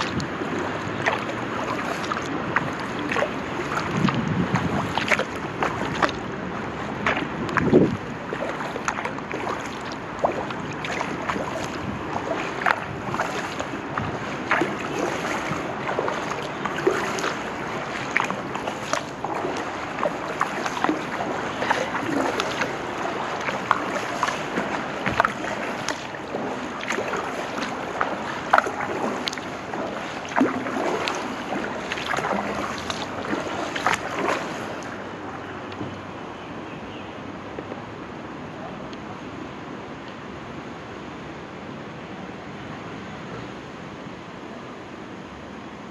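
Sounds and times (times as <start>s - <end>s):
wash of water: 0.0s - 35.8s
paddle strokes splashing water: 0.0s - 36.2s.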